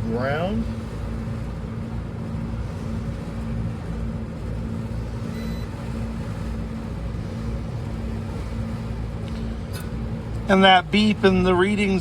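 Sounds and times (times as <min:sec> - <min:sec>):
low machinery hum: 0:00.0 - 0:12.0
multimeter beep: 0:05.3 - 0:05.7.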